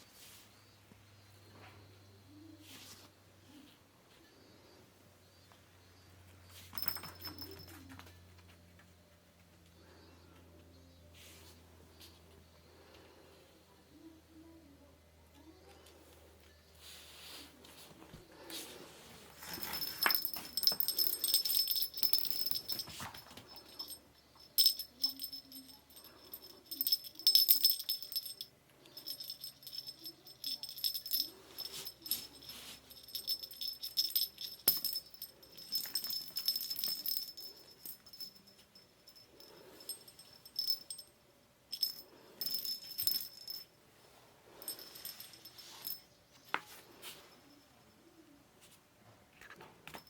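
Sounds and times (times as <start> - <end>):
small bell jingling: 6.5 - 8.0, 19.4 - 43.8, 44.5 - 46.2.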